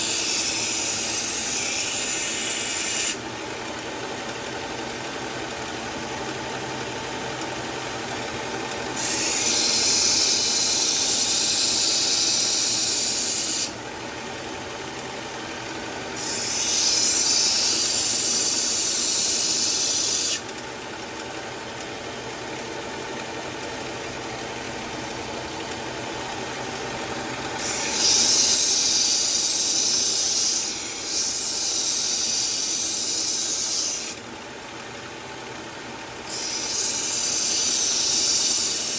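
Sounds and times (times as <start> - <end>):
knife blade grinding hiss: 0.0 - 3.2, 9.0 - 13.8, 16.2 - 20.4, 27.6 - 34.2, 36.3 - 38.9
powered knife sharpener running: 0.0 - 38.9.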